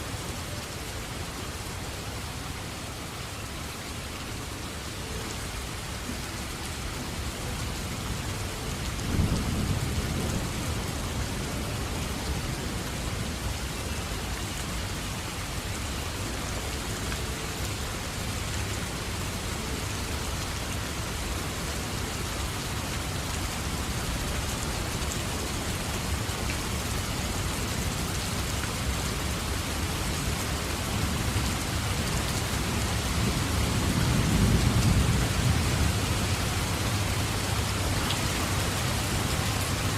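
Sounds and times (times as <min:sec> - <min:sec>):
steady rain falling: 0:00.0 - 0:39.9
thunder rumbling: 0:09.0 - 0:11.5.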